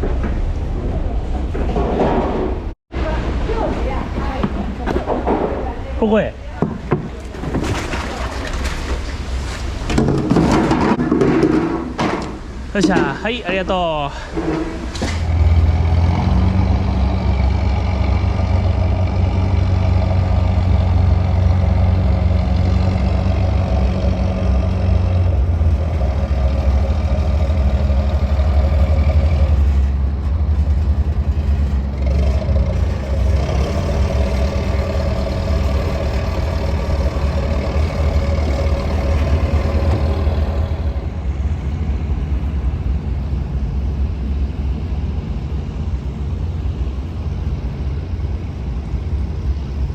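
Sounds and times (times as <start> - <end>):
boat engine droning: 11.6 - 49.9.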